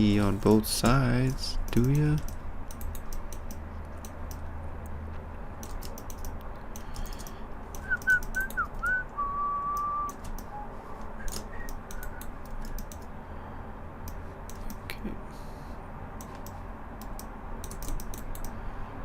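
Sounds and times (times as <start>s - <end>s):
keyboard typing: 0.8s - 4.5s, 5.6s - 8.9s, 9.7s - 10.5s, 11.2s - 13.1s, 14.0s - 14.9s, 16.2s - 18.6s
mouse clicks: 5.6s - 8.6s, 16.2s - 18.6s
person whistling: 7.8s - 12.3s.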